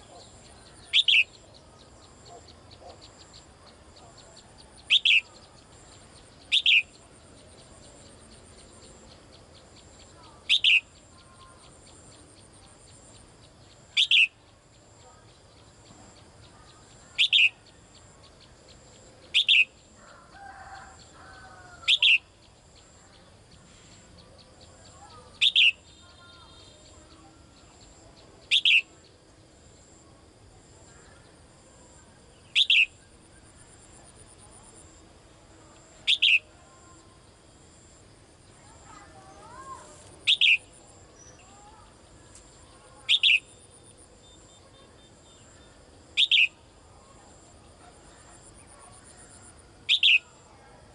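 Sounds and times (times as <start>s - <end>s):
faint bird chirps: 0.0s - 50.9s
songbird short sharp high call: 0.8s - 1.4s, 14.0s - 14.4s, 17.1s - 17.7s, 25.1s - 27.0s, 39.4s - 41.8s, 43.1s - 43.6s, 46.2s - 46.6s, 49.9s - 50.4s.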